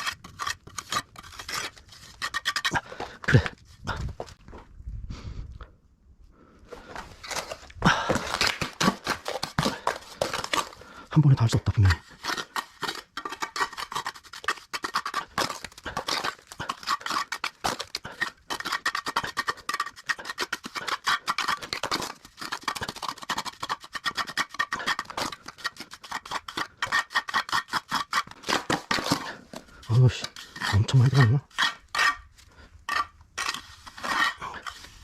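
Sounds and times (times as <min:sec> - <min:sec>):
trowel scraping mortar: 0:00.0 - 0:04.4, 0:06.8 - 0:35.0.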